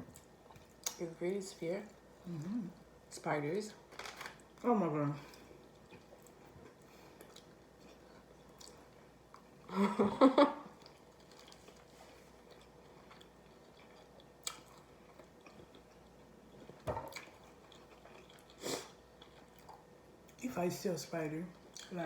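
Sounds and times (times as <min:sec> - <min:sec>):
person chewing: 0:05.2 - 0:09.6, 0:10.7 - 0:20.4.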